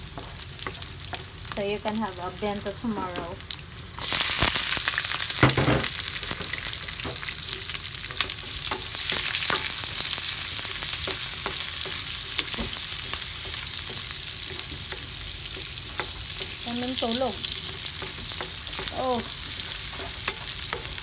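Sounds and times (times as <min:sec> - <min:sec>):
utensil stirring in pan: 0:00.0 - 0:03.4, 0:06.2 - 0:21.0
food sizzling in hot oil: 0:00.0 - 0:21.0.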